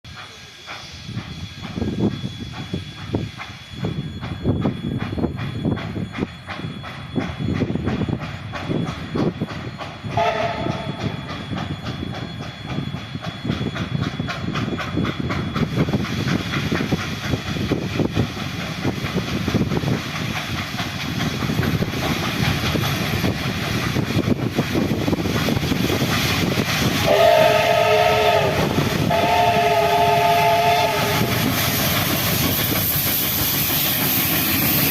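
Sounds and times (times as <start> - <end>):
train wheels clattering on rails: 0.1 - 34.9
steam locomotive chime whistle: 0.2 - 15.0, 26.4 - 34.9.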